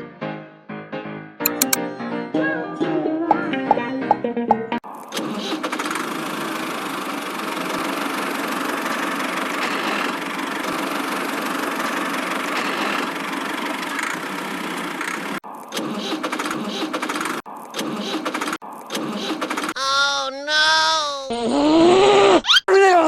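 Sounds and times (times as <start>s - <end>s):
music: 0.0s - 4.8s
small motor hum and rattle: 5.6s - 15.4s.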